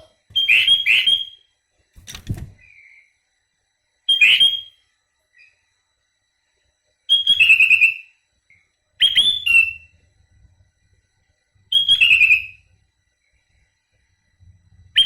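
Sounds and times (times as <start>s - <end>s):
bird whistling song: 0.0s - 1.5s, 2.6s - 3.2s, 4.0s - 4.8s, 5.4s - 5.6s, 7.1s - 10.0s, 11.7s - 12.7s.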